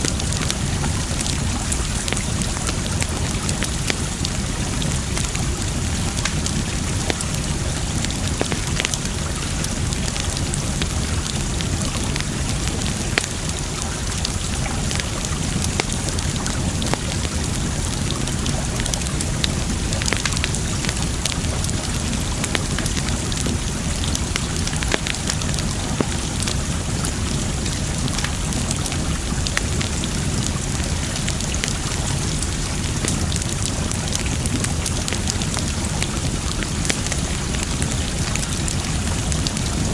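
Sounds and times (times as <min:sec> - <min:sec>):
campfire crackling and popping: 0:00.0 - 0:39.9
running water: 0:00.0 - 0:39.9.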